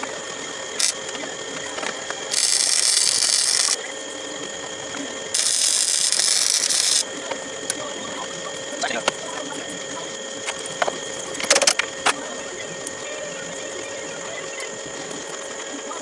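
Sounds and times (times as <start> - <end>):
ratchet wrench clicking: 0.8 - 1.0, 2.3 - 3.8, 5.4 - 7.0.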